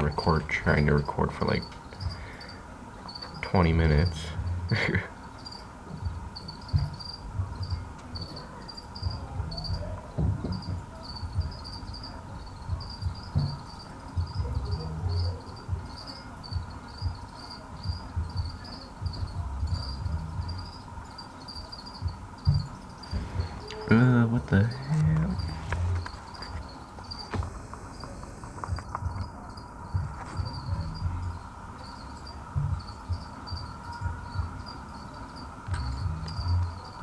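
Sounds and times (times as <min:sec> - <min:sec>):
crickets chirping: 0:00.0 - 0:37.0
low thumps and rumble: 0:03.9 - 0:04.8, 0:05.9 - 0:08.4, 0:09.0 - 0:21.2, 0:22.0 - 0:31.5, 0:32.2 - 0:34.8, 0:35.7 - 0:37.0.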